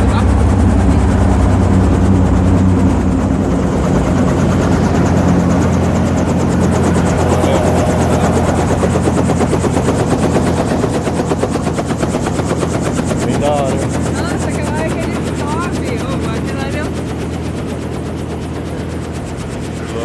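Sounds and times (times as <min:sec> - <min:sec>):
helicopter engine and rotor: 0:00.0 - 0:20.0.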